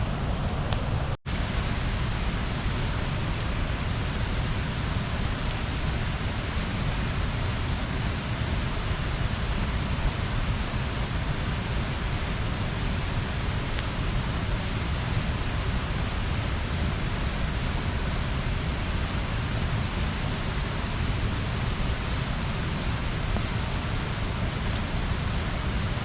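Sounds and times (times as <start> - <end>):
bonfire rushing and rumbling: 0.0 - 26.0
faint fire crackle: 0.0 - 26.0.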